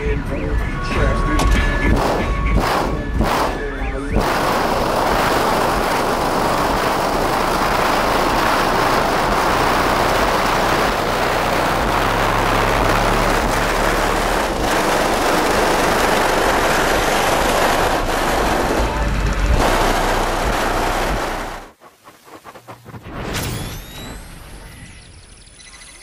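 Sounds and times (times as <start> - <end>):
loud bass from subwoofers: 0.0 - 21.7
body panels buzzing and rattling: 1.3 - 21.8.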